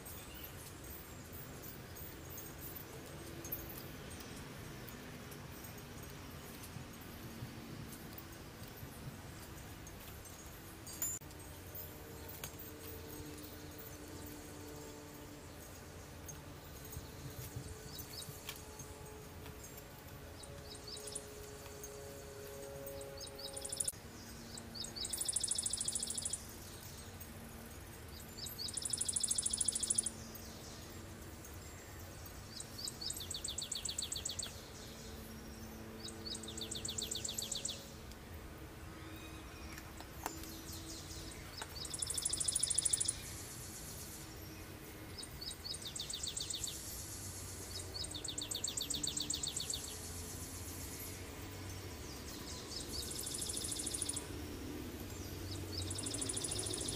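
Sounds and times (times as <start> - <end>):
songbird trilling: 24.5 - 26.5, 28.4 - 30.3, 39.1 - 43.4, 52.6 - 54.3, 55.6 - 56.9.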